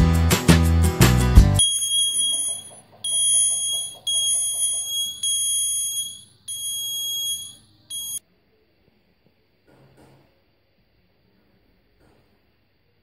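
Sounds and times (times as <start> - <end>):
high-pitched buzzer tone bursts: 1.6 - 8.2.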